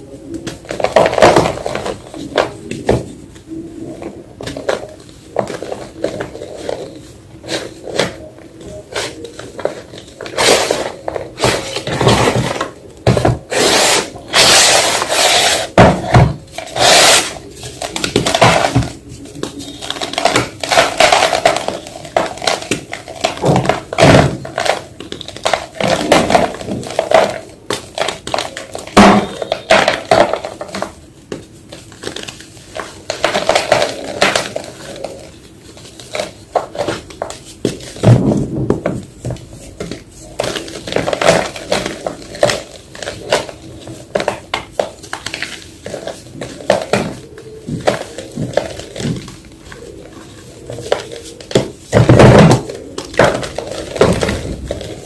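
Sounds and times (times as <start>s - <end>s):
chalk being crushed: 13.5s - 16.0s, 16.7s - 18.8s.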